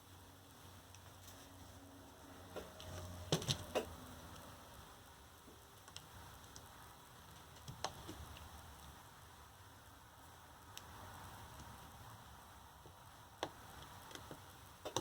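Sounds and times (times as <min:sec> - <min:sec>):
clicks and knocks of battery parts: 0:13.4 - 0:15.0.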